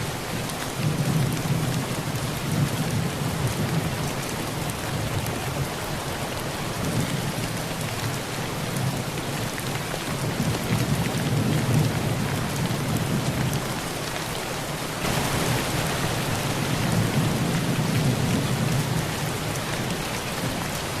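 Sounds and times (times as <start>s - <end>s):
heavy rain on a tin roof: 0.0s - 21.0s
low rumble of thunder: 15.0s - 21.0s.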